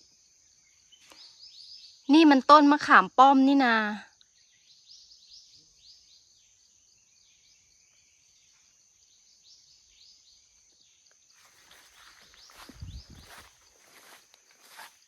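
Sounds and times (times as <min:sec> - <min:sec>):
small birds chirping: 0:00.0 - 0:02.7, 0:03.6 - 0:15.0
high insect whine: 0:04.4 - 0:15.0.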